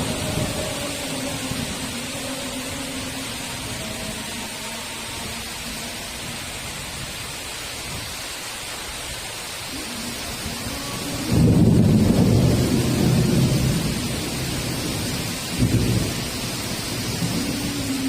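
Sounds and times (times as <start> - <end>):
thunder rumbling: 0.0 - 4.6, 9.7 - 18.0
heavy rain: 0.0 - 18.0.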